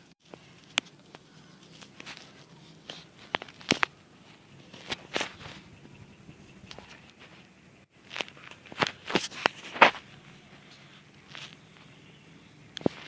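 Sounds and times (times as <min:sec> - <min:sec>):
light clicks and knocks of handling: 0:00.2 - 0:05.7.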